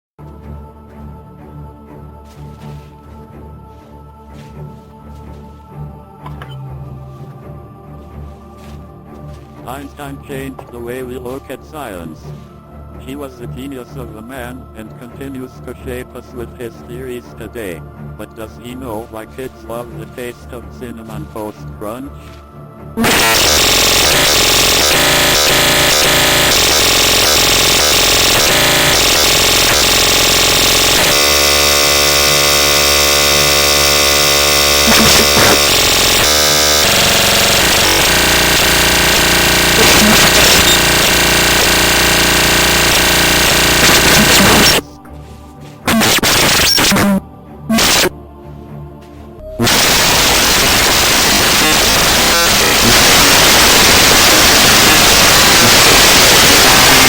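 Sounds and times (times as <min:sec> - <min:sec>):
electronic hiss: 0:23.0 - 0:44.9, 0:45.9 - 0:47.1, 0:47.7 - 0:48.1, 0:49.6 - 0:57.0
harsh electronic tones: 0:23.0 - 0:45.1, 0:45.9 - 0:48.2, 0:49.4 - 0:57.0.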